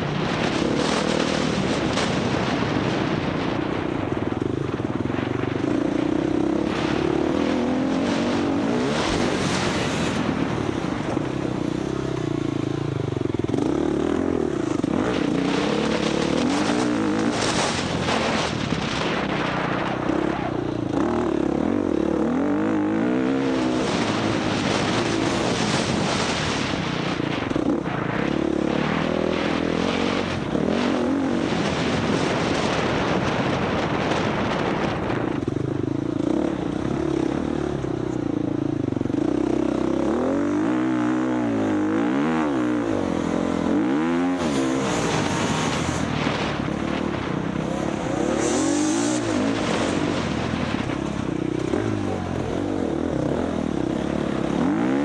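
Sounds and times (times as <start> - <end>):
motorcycle engine revving: 0.0 - 55.0
steady rushing noise: 0.0 - 55.0.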